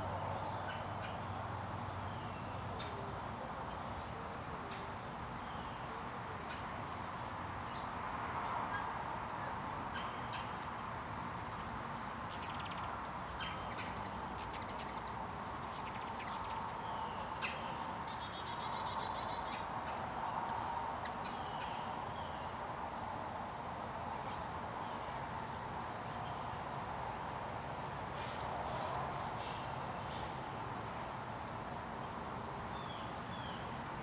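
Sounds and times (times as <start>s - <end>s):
birds chirping: 11.2s - 22.6s.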